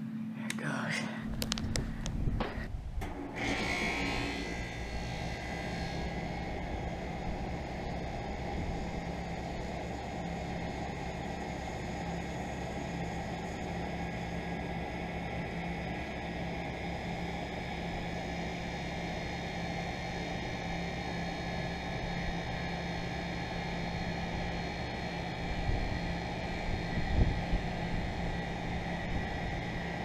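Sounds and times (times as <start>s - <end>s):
air conditioner humming: 0.0s - 30.0s
low thumps: 1.3s - 3.1s.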